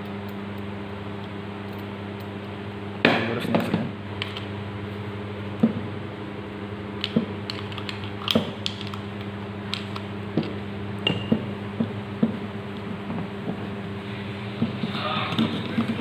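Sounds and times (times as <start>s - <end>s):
steady low hum: 0.0s - 16.0s
metal parts clicking and tapping: 7.0s - 9.0s.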